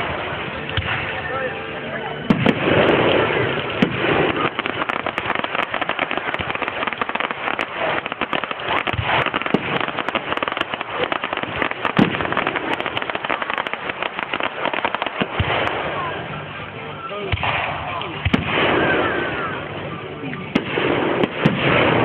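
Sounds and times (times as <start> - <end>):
fireworks crackling: 0.0 - 22.0
firework shells bursting: 2.3 - 15.8.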